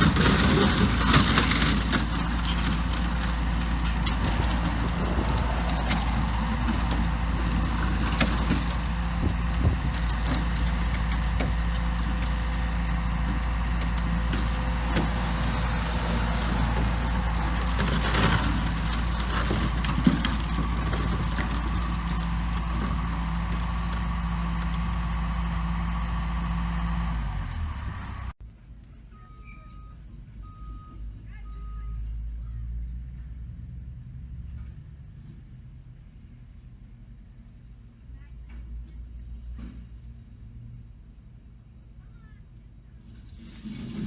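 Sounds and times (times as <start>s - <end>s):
excavator diesel engine running: 0.0s - 28.4s.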